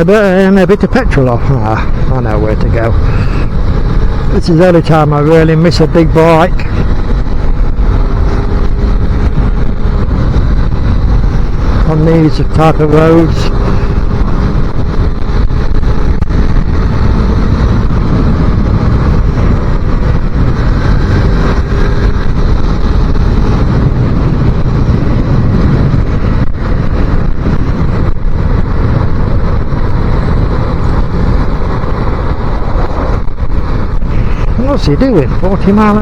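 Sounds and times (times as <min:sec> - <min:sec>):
motorcycle engine running: 0:00.0 - 0:36.0
wind rush on microphone: 0:00.0 - 0:36.0.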